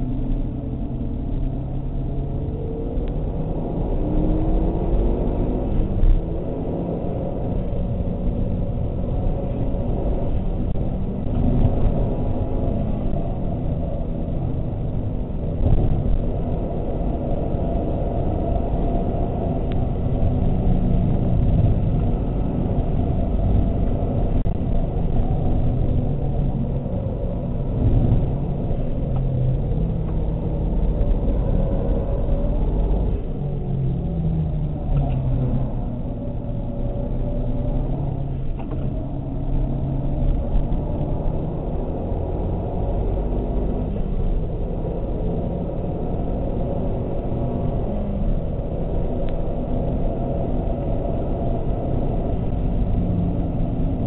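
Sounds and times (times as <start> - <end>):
car engine accelerating: 0.0 - 54.0
road and wind noise: 0.0 - 54.0.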